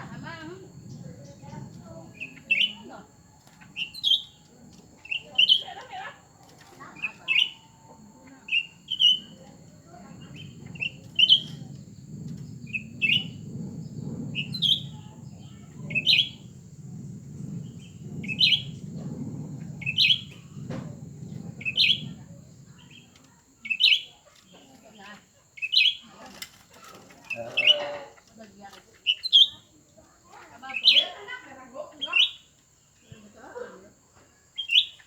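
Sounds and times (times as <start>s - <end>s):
low background rumble: 0.0s - 25.1s
songbirds chirping: 0.0s - 35.0s.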